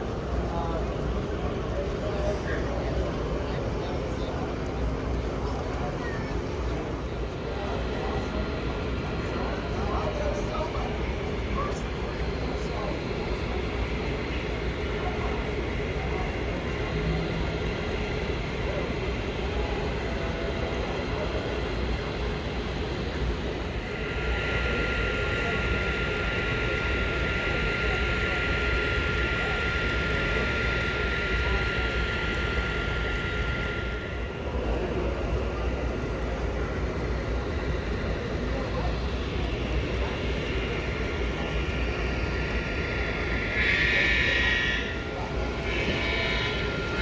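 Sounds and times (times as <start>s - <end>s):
indistinct crowd chatter: 0.0s - 47.0s
faint steady tone: 7.0s - 47.0s.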